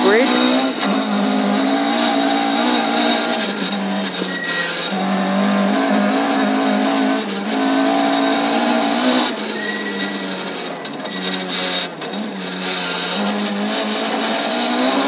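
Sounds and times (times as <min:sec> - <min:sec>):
gravel road noise: 0:00.0 - 0:15.0
rally car engine running hard: 0:00.0 - 0:15.0.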